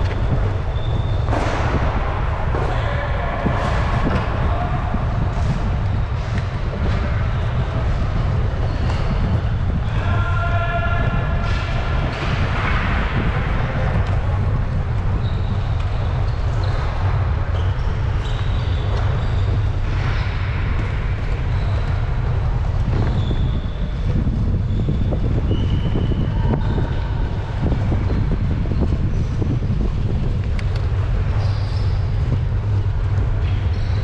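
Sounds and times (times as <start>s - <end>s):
bike tyres and drivetrain rumble: 0.0s - 34.0s
wind rushing over microphone: 0.0s - 34.0s.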